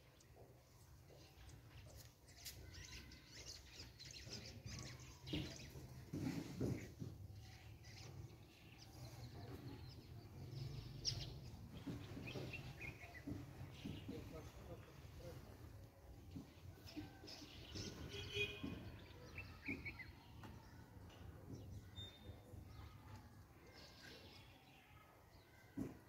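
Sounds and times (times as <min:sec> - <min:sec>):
birds chirping: 0:00.0 - 0:25.8
soft knocks: 0:11.6 - 0:15.3.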